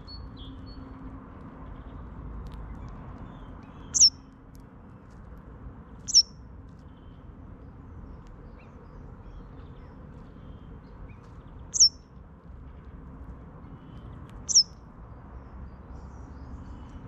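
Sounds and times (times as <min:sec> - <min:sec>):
high-pitched songbird calls: 0:03.7 - 0:04.2, 0:06.0 - 0:06.4, 0:11.7 - 0:12.0, 0:14.4 - 0:14.8.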